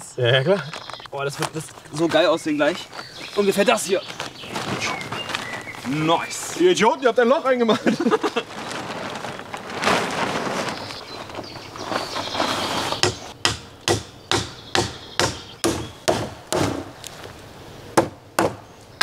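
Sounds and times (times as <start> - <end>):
rustling: 0.5 - 13.3, 16.7 - 17.8
sharp blows on wood: 13.0 - 17.0.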